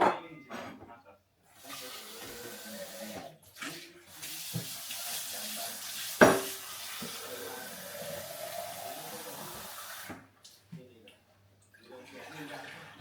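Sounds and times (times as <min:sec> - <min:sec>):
kitchenware clinking: 0:00.0 - 0:01.0, 0:06.2 - 0:07.2
tap water running into sink: 0:01.6 - 0:10.3.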